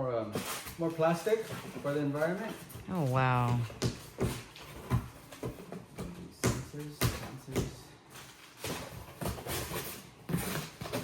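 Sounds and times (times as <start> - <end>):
person speaking: 2.8 - 3.7.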